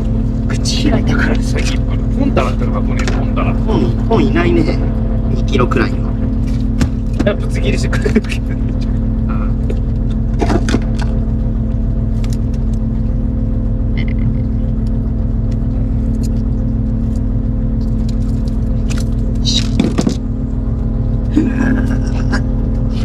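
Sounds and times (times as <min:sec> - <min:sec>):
boat engine humming: 0:00.0 - 0:23.0
gear knocking and clattering: 0:14.7 - 0:20.4.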